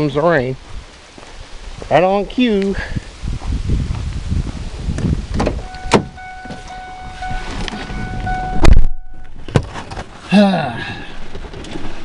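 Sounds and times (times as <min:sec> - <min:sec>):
car door handled: 0:05.3 - 0:10.1
car door slamming: 0:05.3 - 0:10.1
electronic warning chime: 0:05.6 - 0:09.3.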